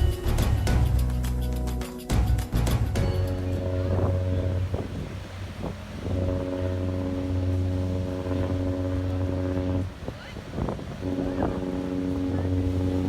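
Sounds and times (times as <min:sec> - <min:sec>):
ship horn blasts: 0:03.0 - 0:13.0.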